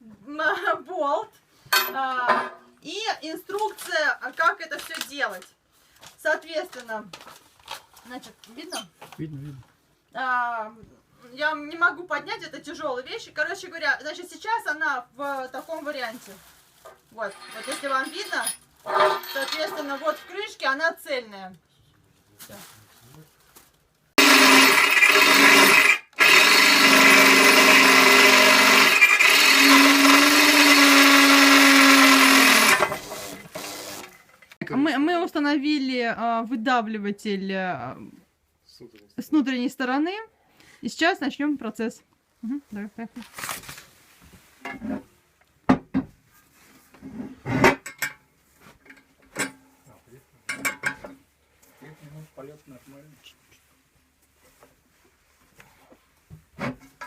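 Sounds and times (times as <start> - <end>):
metal tools clanking on cast iron: 17.2 - 20.4, 50.5 - 51.2
electric drill running: 24.2 - 34.2.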